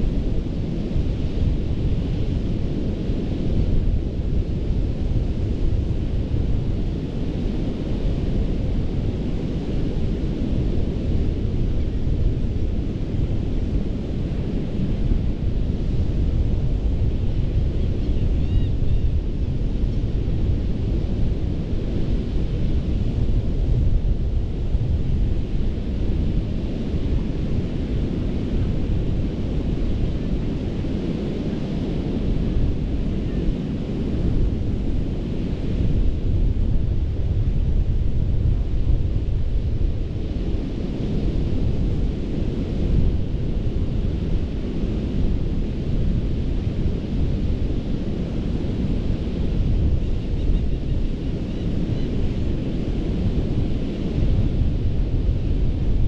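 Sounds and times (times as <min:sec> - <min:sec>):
surf waves washing on beach: 0:19.6 - 0:56.0.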